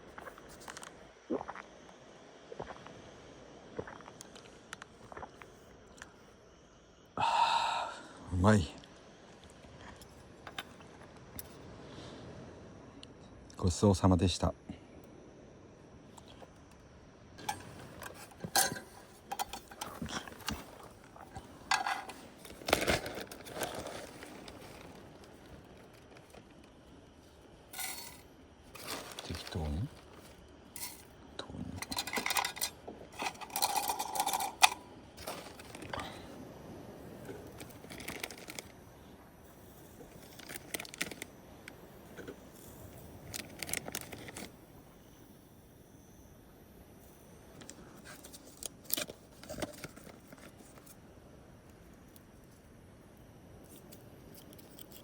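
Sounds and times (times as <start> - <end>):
hands rustling wrappers and cooking gear: 17.4 - 31.1, 31.8 - 36.3, 37.2 - 38.8, 40.0 - 41.7, 42.4 - 44.5, 47.7 - 51.0.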